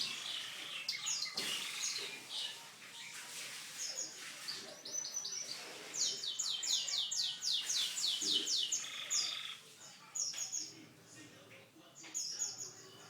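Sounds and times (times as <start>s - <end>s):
canary singing: 4.9s - 10.8s.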